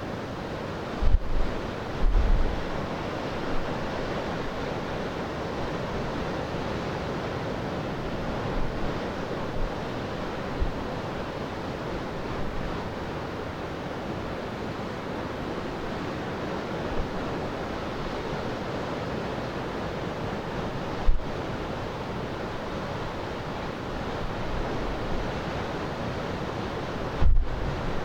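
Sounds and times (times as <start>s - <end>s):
waves breaking on shore: 0.0s - 28.0s
wind buffeting microphone: 1.0s - 2.8s, 27.0s - 28.0s.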